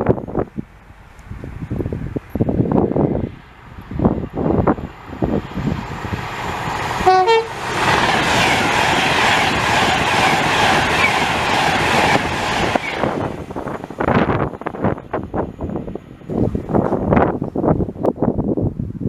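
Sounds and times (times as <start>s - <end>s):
train passing rush: 0.0s - 18.4s
train two-tone horn: 7.0s - 7.6s.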